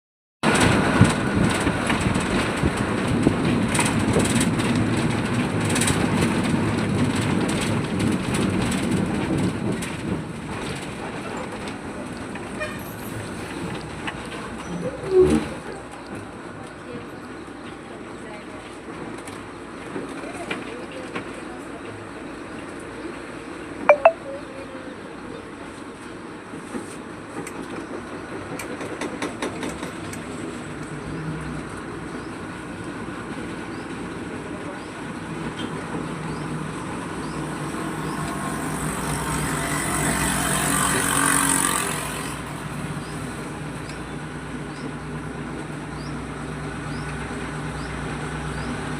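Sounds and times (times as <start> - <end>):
vehicle passing close: 36.4 - 43.9.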